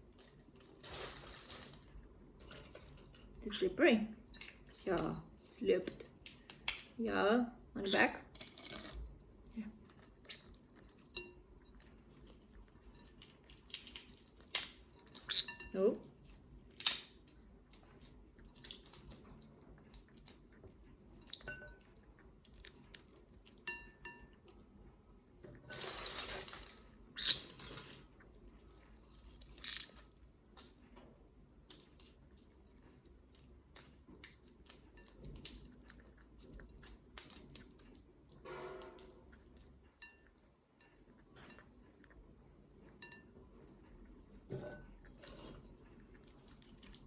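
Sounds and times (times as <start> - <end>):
beak clicking and crunching on shell: 6.0 - 7.0, 12.3 - 15.6, 16.6 - 24.4, 29.2 - 30.7, 33.7 - 39.4.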